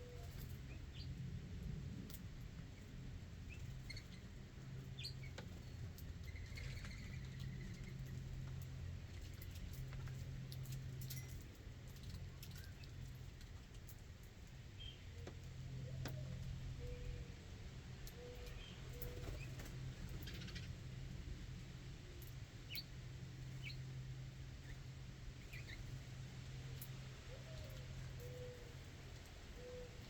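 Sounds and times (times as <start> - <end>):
light clicks of birds feeding: 0.0 - 30.0
birds chirping: 2.8 - 13.3, 14.7 - 21.0, 22.0 - 26.0
low bird calls: 27.2 - 28.9, 29.5 - 30.0.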